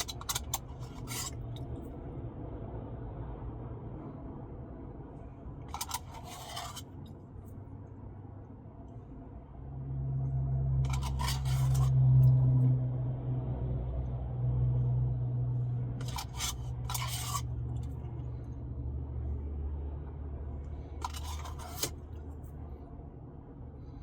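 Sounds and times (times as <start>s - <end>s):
spoon scraping and clinking in a cup: 0.0s - 1.7s, 5.7s - 7.0s, 10.8s - 12.0s, 16.0s - 18.0s, 21.0s - 22.1s
low steady hum: 0.0s - 24.0s.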